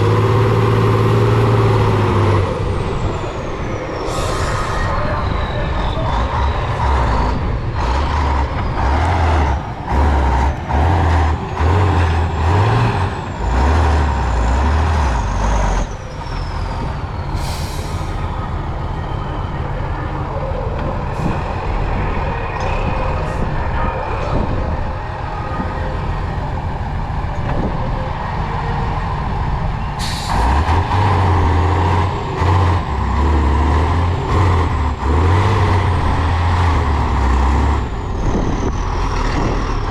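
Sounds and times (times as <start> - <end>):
truck engine revving: 0.0 - 27.3, 28.2 - 39.9.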